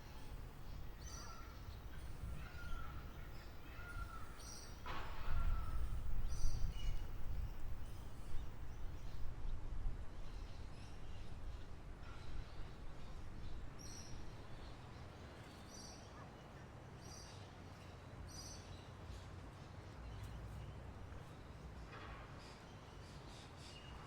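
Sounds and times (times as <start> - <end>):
wild birds calling: 0.0 - 9.2.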